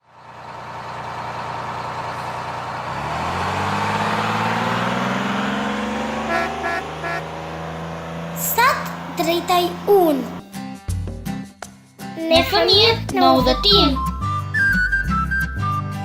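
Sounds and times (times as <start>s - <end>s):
car engine speeding up: 2.0s - 10.4s
car horn toots: 6.2s - 7.4s.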